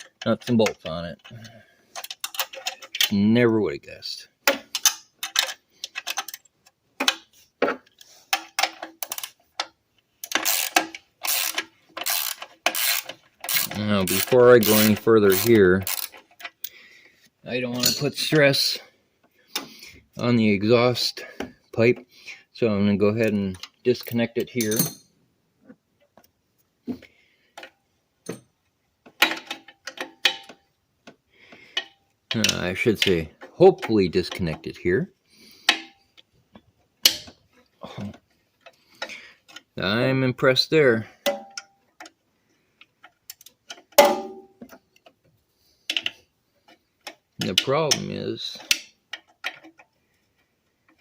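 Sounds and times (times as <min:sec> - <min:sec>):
socket ratchet clicking: 0:10.2 - 0:16.7
hand tools clinking: 0:17.7 - 0:18.4, 0:23.6 - 0:25.1.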